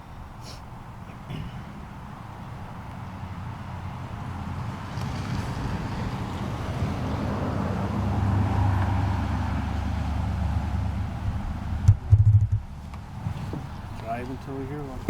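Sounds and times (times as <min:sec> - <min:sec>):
truck engine and road noise: 0:00.0 - 0:15.0.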